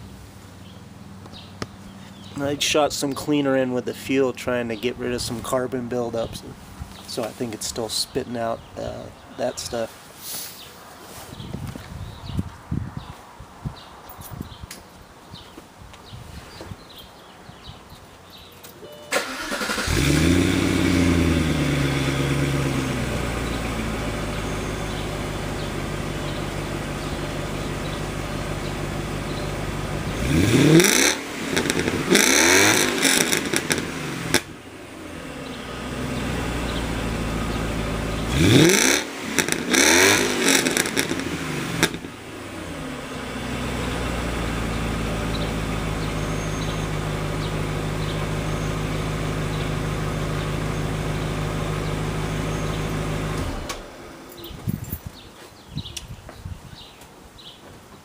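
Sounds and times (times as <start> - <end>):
car engine starting and idling: 18.9 - 54.5
engine revving: 19.1 - 54.2.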